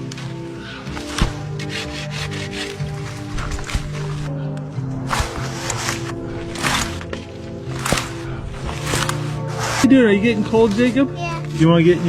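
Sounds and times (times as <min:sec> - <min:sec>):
background music: 0:00.0 - 0:12.0
saw cutting through tree: 0:01.0 - 0:04.3, 0:05.0 - 0:10.0.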